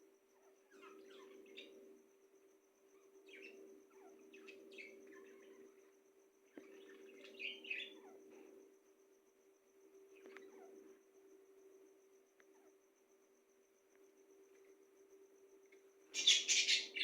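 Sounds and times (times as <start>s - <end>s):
steady low hum: 0.0s - 17.0s
small birds chirping: 0.4s - 1.9s, 2.9s - 8.6s, 10.1s - 11.0s, 16.1s - 17.0s.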